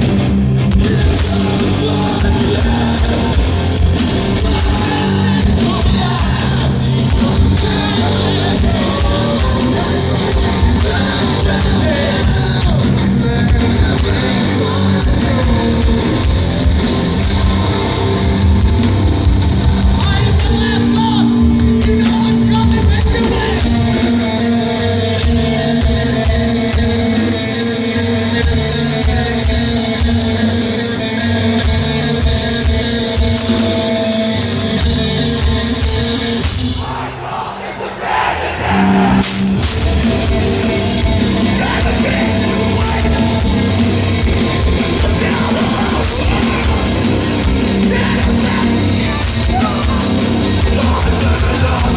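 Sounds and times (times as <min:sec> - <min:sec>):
live heavy rock band: 0:00.0 - 0:51.9
sung-shouted vocals: 0:00.6 - 0:18.5, 0:19.9 - 0:27.2, 0:36.6 - 0:51.9.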